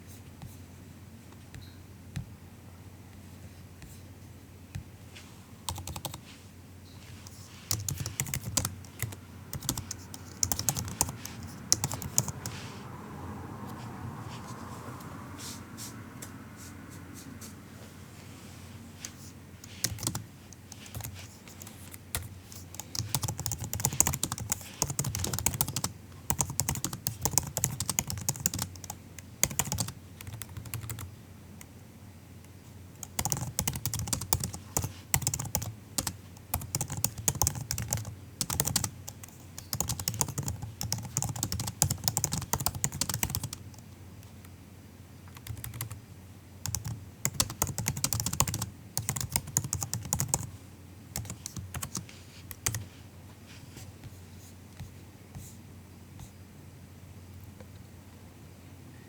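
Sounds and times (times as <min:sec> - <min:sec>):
laptop keyboard typing: 0:05.7 - 0:06.2, 0:07.1 - 0:12.8, 0:19.0 - 0:31.8, 0:32.9 - 0:44.5, 0:45.3 - 0:46.0, 0:46.6 - 0:50.6, 0:51.2 - 0:52.8.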